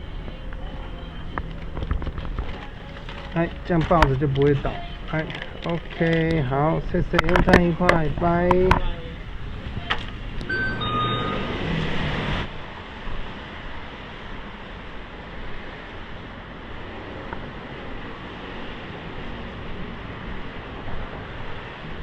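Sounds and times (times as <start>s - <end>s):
street traffic noise: 0.0s - 12.5s
short electronic beeps: 9.8s - 12.4s.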